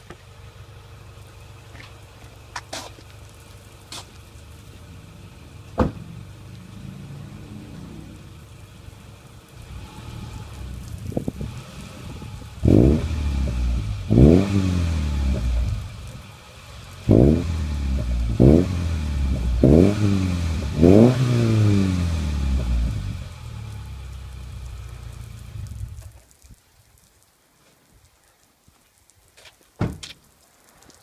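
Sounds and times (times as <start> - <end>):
car engine revving: 3.9 - 26.0.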